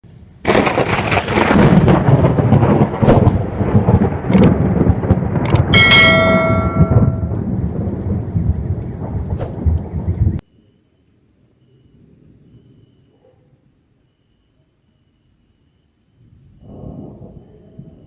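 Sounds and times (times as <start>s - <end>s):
thunder rumbling: 0.0s - 10.4s, 16.2s - 18.0s
thunder cracks: 0.4s - 10.4s, 16.6s - 18.0s
bell-like ring: 5.8s - 7.4s.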